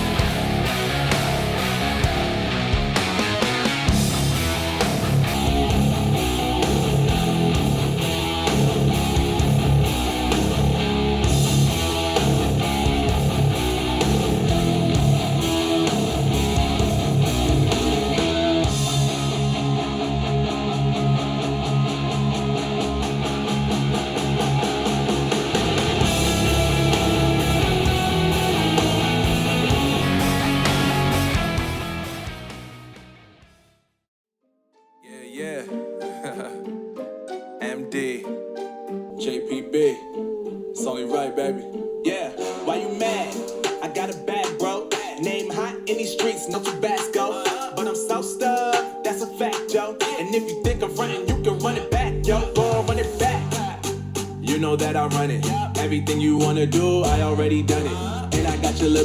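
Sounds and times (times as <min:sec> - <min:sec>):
guitar music through speaker: 0:00.0 - 0:33.6, 0:35.0 - 0:36.7.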